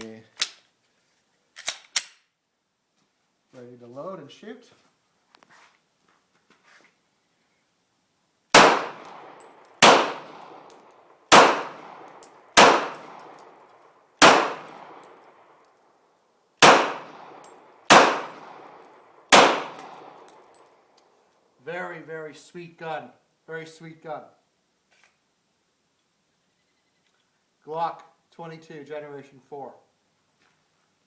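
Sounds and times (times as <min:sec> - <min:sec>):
pistol shots echoing: 0:08.6 - 0:15.6, 0:16.6 - 0:20.7.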